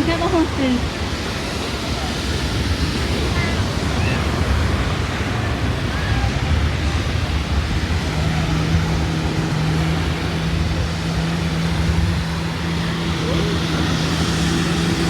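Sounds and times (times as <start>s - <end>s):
sea surf: 0.0s - 15.0s
wind buffeting microphone: 0.0s - 15.0s
steady motor hum: 3.1s - 15.0s.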